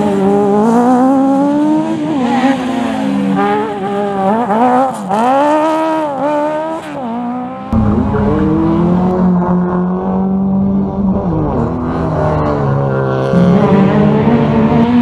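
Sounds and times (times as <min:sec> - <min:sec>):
rally car engine revving: 0:00.0 - 0:15.0
heavy low rumble: 0:07.7 - 0:10.2.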